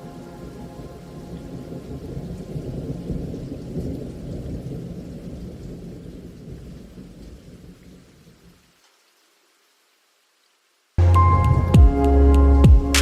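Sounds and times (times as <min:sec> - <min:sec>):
thunder rumbling: 0:00.0 - 0:08.4
rain falling: 0:00.0 - 0:13.0.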